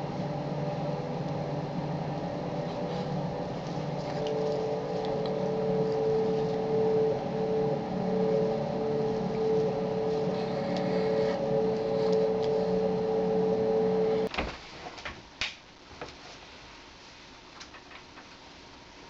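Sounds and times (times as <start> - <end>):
machine hum: 0.0 - 14.3.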